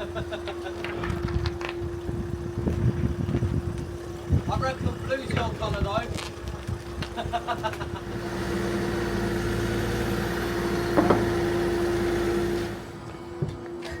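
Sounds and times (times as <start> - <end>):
motor humming and hissing: 6.6 - 14.0.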